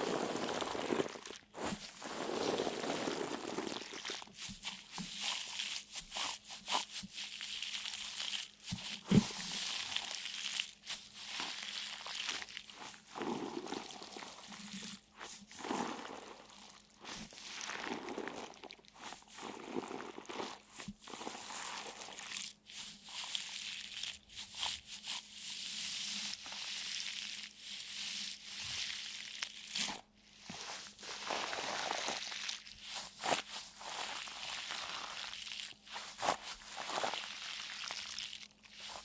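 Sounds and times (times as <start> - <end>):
crunching and crinkling: 0.0 - 24.8, 28.8 - 39.0.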